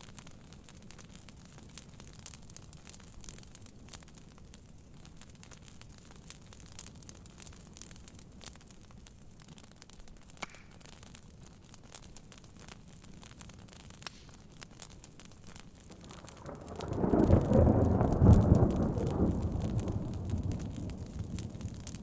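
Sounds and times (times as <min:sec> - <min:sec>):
faint crackling pops: 0:00.0 - 0:22.0
rain patter: 0:00.0 - 0:22.0
deep thunder rumble: 0:16.0 - 0:22.0.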